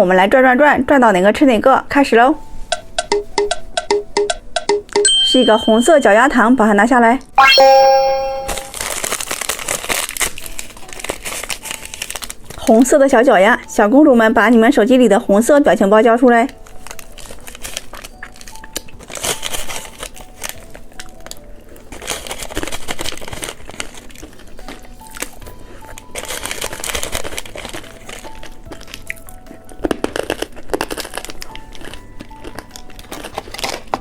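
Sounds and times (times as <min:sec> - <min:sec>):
soft background music: 0:00.0 - 0:34.0
plastic wrapper crinkling: 0:08.7 - 0:13.4, 0:16.4 - 0:34.0.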